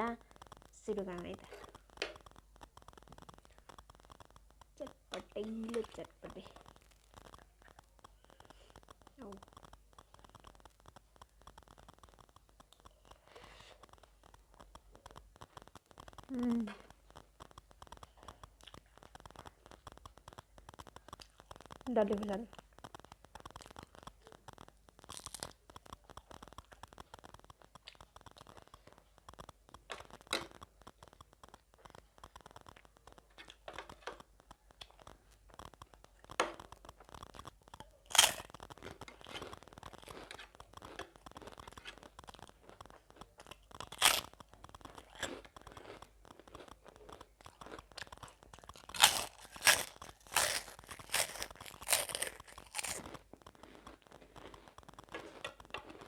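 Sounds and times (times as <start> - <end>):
crunching and chewing snack: 0.0 - 56.0.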